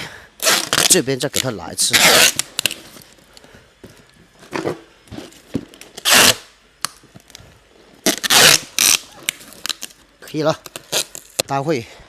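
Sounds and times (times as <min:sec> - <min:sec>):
packing tape ripping off roll: 0:00.4 - 0:03.1, 0:05.3 - 0:07.4, 0:08.0 - 0:11.5.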